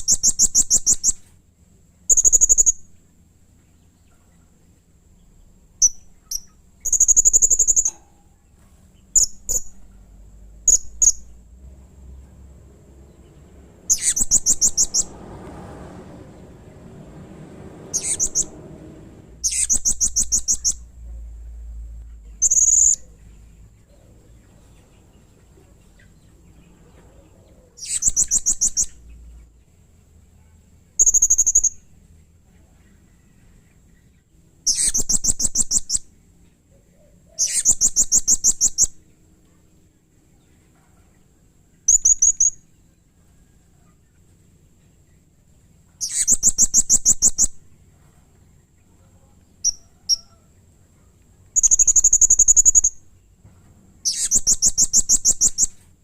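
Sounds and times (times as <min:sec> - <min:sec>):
parrot calling shrilly: 0:13.9 - 0:15.0, 0:17.9 - 0:18.5, 0:19.4 - 0:20.8.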